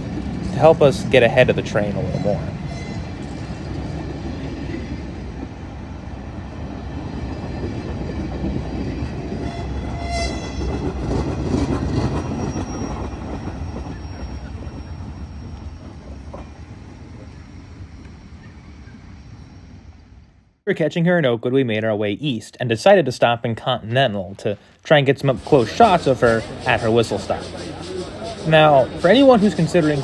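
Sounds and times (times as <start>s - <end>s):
train rolling on rails: 0.0s - 20.6s, 21.2s - 30.0s
faint wheel squeal: 1.7s - 4.0s, 11.7s - 19.6s, 25.5s - 30.0s.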